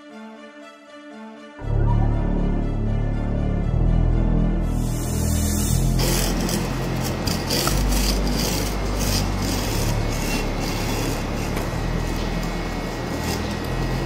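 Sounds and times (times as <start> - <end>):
hand file rasping on metal: 4.8 - 14.0.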